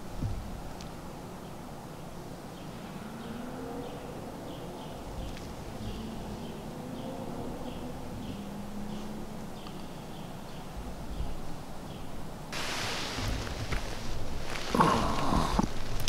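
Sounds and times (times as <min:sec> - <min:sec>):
low steady outdoor hum: 0:00.0 - 0:16.0
faint clicks: 0:08.9 - 0:10.0.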